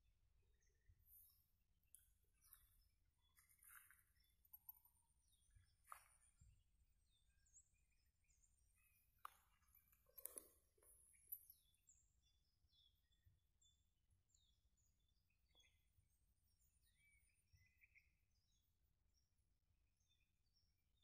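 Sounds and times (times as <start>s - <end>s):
faint bird chirps: 0.2s - 21.0s.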